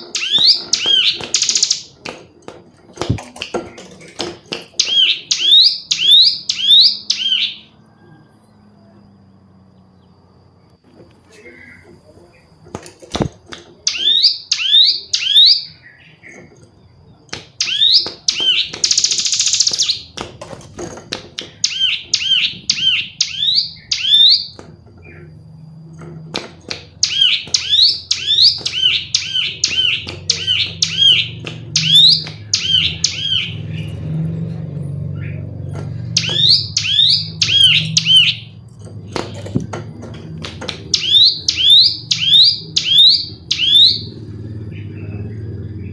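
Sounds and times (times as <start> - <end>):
bird sharp chirps: 0.0 - 2.0, 4.8 - 7.8, 13.8 - 20.2, 21.4 - 25.3, 26.9 - 34.0, 35.2 - 38.6, 40.8 - 45.9
bird buzzy rattle: 0.0 - 7.2, 12.6 - 34.7.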